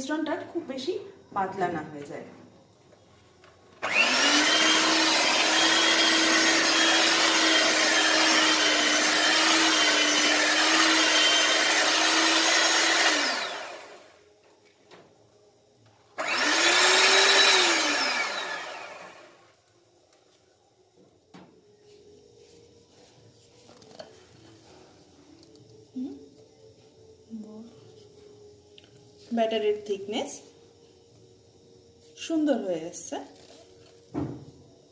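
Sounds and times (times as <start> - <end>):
electric mixer motor: 3.8 - 14.2, 16.2 - 19.4.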